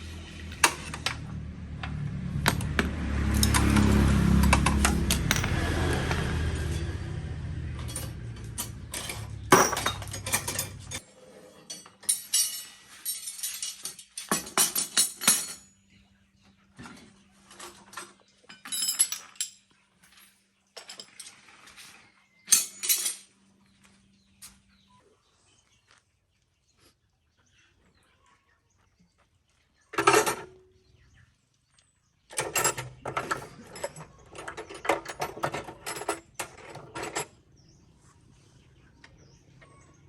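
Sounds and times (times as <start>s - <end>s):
small tractor engine running: 0.0s - 10.2s
metallic clinks of tools: 7.7s - 11.0s, 11.7s - 15.7s.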